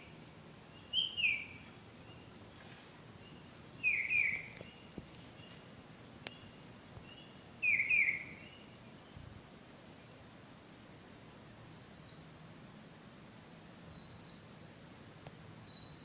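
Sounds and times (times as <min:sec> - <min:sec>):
bird singing: 0:00.0 - 0:02.4, 0:03.2 - 0:09.2, 0:11.7 - 0:12.4, 0:13.9 - 0:14.7, 0:15.6 - 0:16.0.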